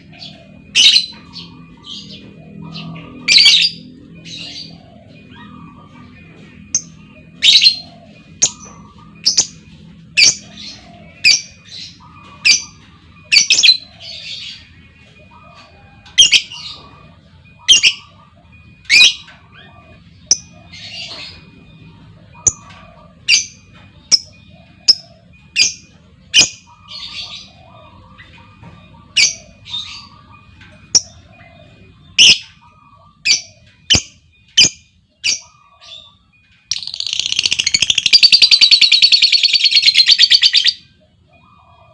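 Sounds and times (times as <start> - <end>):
lovebird high-pitched calls: 0.0 - 14.7, 17.6 - 18.2, 32.1 - 40.9.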